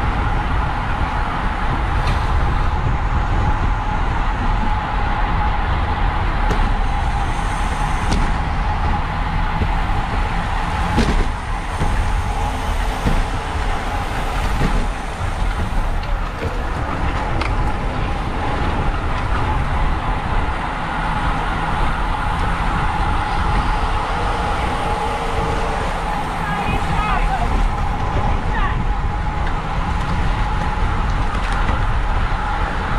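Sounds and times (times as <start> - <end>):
wind rushing over microphone: 0.0 - 32.9
steady hum: 5.9 - 28.7.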